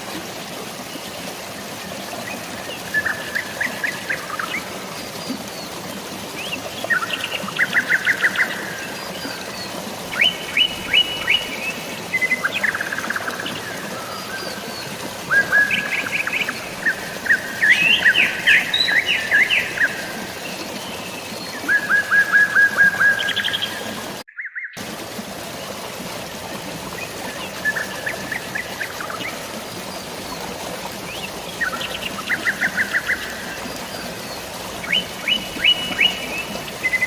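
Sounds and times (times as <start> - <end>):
running water: 0.0 - 37.0
songbirds singing: 1.8 - 24.8, 26.9 - 37.0.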